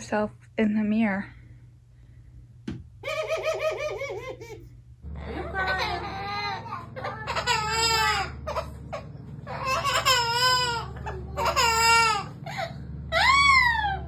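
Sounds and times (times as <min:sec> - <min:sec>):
steady low hum: 0:00.0 - 0:14.0
bird wailing calls: 0:03.0 - 0:04.4, 0:05.2 - 0:14.0.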